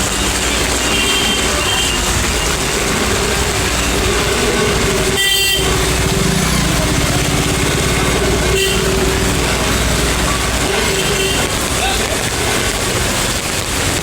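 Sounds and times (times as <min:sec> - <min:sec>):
road traffic noise: 0:00.0 - 0:14.0
vehicle horn honking: 0:00.8 - 0:11.9.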